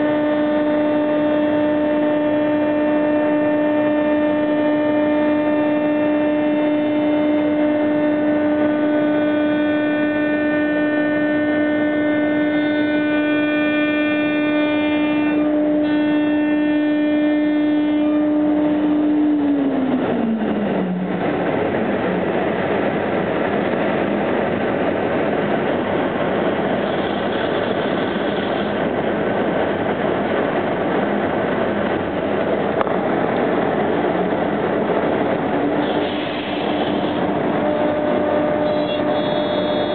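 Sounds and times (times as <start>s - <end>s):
dense rushing noise: 18.8s - 39.9s.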